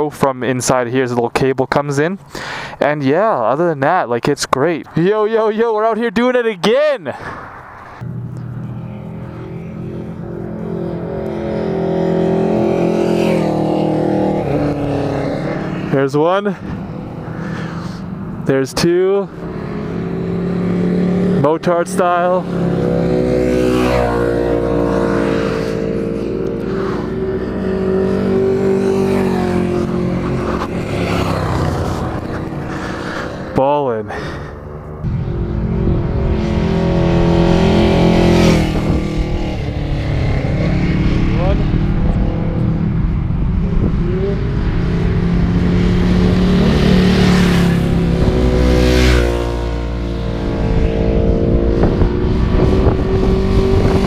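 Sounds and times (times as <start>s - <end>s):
motorcycles riding past: 7.2s - 54.0s.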